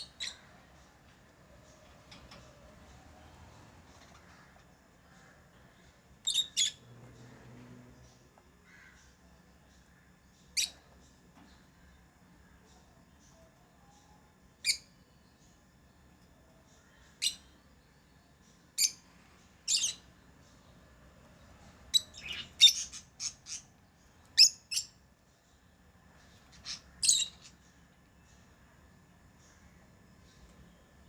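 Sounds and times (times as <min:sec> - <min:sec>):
lovebirds chirping: 0:00.0 - 0:04.3, 0:05.0 - 0:07.5, 0:10.4 - 0:31.0.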